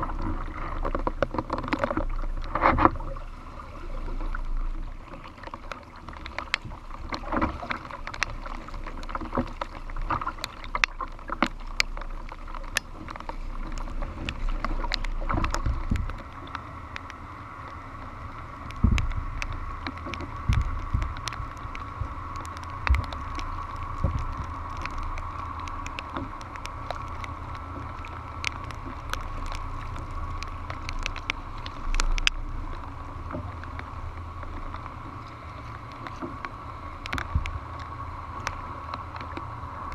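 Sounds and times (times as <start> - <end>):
sharp ticks and knocks: 0.0 - 3.0, 5.4 - 39.6
paddle strokes: 0.0 - 39.9
water washing against hull: 0.0 - 39.9
wind gusting on microphone: 18.7 - 19.7.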